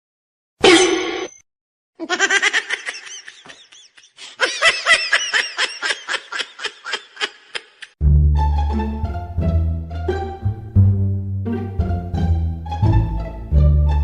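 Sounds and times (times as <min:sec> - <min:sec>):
high-pitched laughter: 0:02.0 - 0:08.0.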